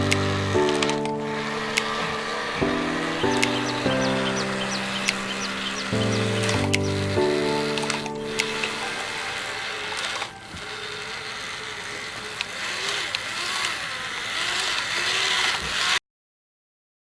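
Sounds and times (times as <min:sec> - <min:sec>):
sharp clicks: 0:00.0 - 0:16.0
small electric motors whirring: 0:00.0 - 0:16.0.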